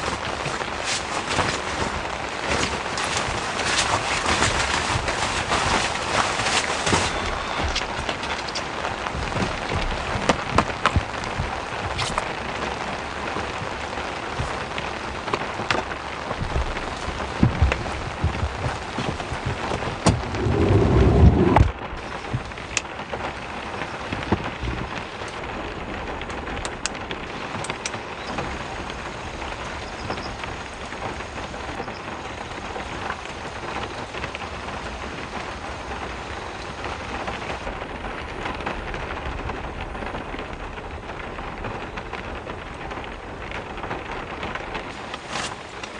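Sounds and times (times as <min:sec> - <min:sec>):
heavy rain: 0:00.0 - 0:45.9
loud low rumble: 0:20.0 - 0:22.0.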